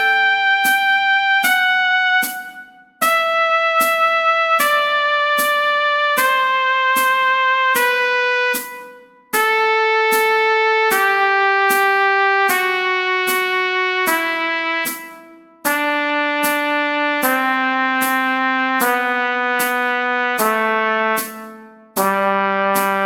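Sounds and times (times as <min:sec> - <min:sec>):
keyboard chords: 0:00.0 - 0:23.0
trumpet playing scale: 0:00.0 - 0:23.0.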